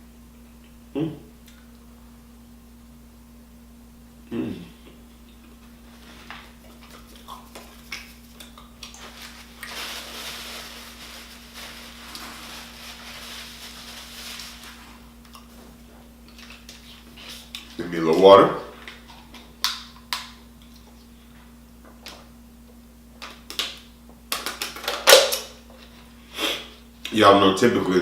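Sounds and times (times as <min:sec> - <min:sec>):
faint steady hum: 0:00.0 - 0:28.0
mouth noises while eating: 0:00.6 - 0:01.9, 0:04.2 - 0:05.6, 0:06.5 - 0:09.7
person humming: 0:00.9 - 0:01.4, 0:04.2 - 0:05.0
rustling: 0:08.9 - 0:15.8.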